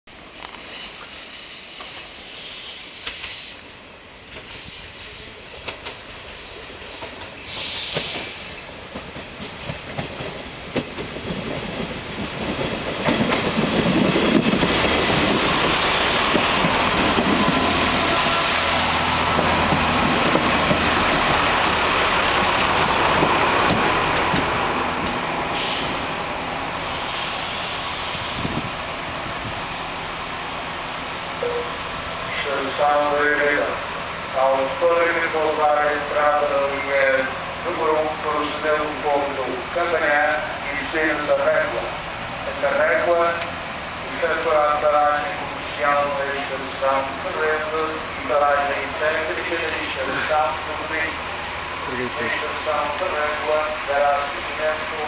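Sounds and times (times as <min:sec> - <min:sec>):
short hiss: 0:26.8 - 0:28.6.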